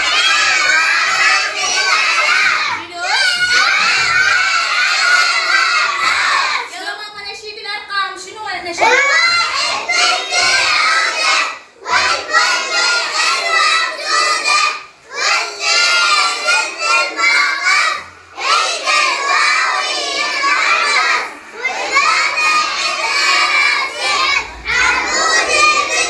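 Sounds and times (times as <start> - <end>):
children chanting in unison: 0.0 - 6.7, 8.8 - 26.0.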